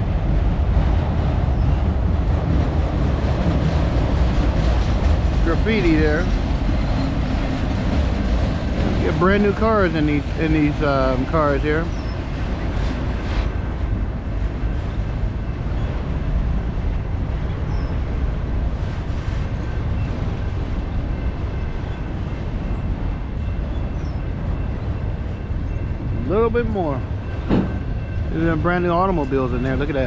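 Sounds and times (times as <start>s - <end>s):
freight train rumbling past: 0.0s - 30.0s.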